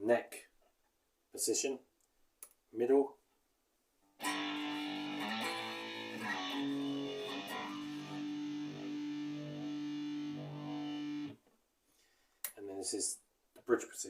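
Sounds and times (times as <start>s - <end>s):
electric guitar chords ringing: 4.2s - 11.4s.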